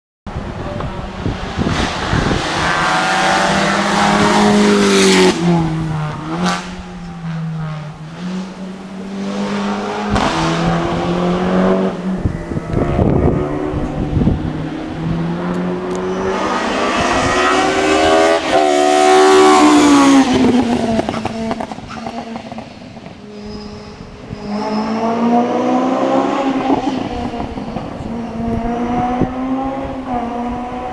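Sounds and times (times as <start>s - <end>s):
race car engine at full throttle: 0.3s - 30.9s.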